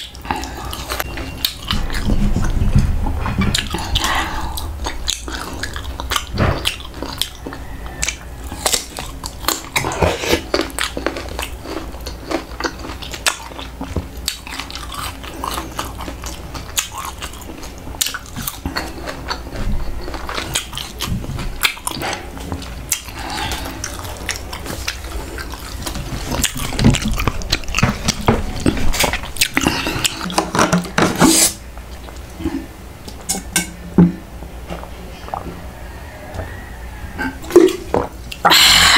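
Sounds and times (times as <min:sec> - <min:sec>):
crunching and chewing food: 0:00.0 - 0:31.1
wet mouth sounds: 0:03.5 - 0:33.6, 0:34.7 - 0:35.6.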